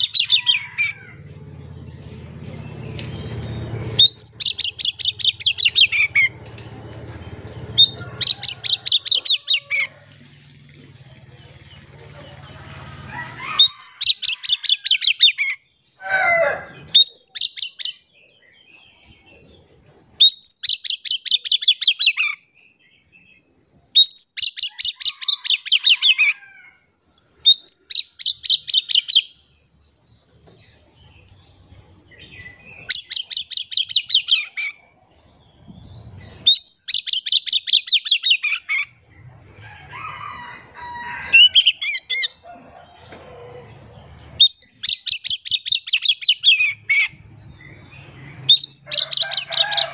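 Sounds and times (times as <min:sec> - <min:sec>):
bird singing trilled notes: 0:01.5 - 0:06.6.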